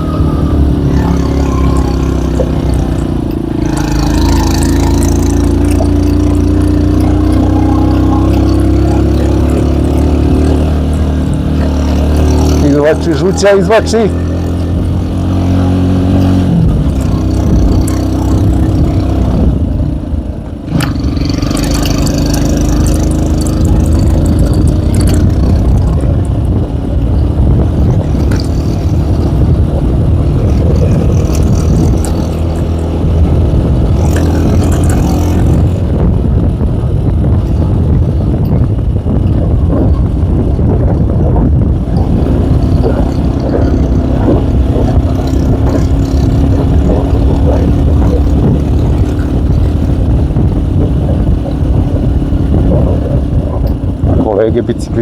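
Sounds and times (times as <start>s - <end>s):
motorcycle engine under load: 0.0s - 55.0s.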